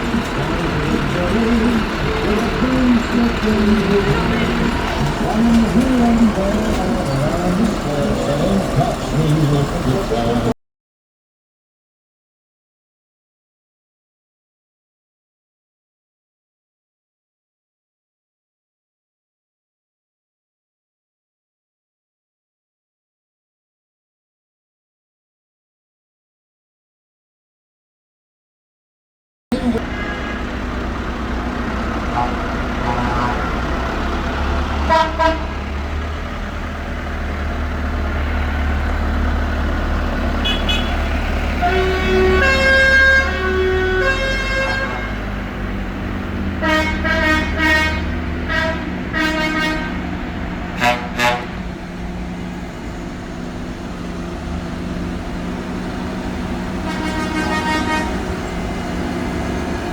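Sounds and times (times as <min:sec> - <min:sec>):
tractor horns tooting: 0:00.0 - 0:10.5, 0:29.5 - 0:35.8, 0:40.3 - 0:45.5, 0:46.6 - 0:51.7, 0:56.6 - 0:58.7
tractor engines rumbling: 0:00.0 - 0:10.6, 0:29.5 - 0:59.9.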